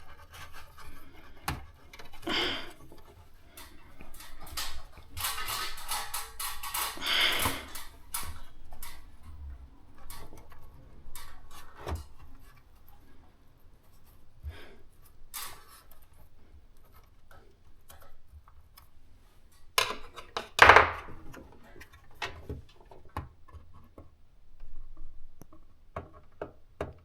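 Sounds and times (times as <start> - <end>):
tools clicking and knocking: 0.6 - 12.6, 15.3 - 16.2, 19.5 - 24.1.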